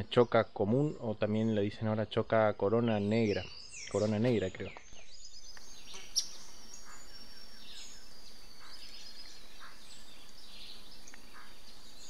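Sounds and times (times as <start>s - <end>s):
forest birds calling: 0.0s - 12.0s
faint high whine: 5.2s - 12.0s.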